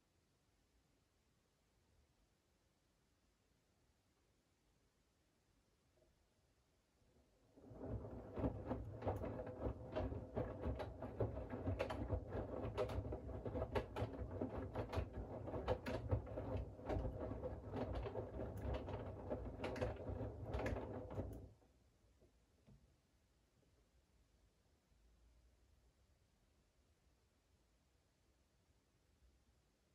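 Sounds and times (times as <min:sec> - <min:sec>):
laundry tumbling knocks: 0:07.6 - 0:21.5
washing machine drum rumbling: 0:07.6 - 0:21.5.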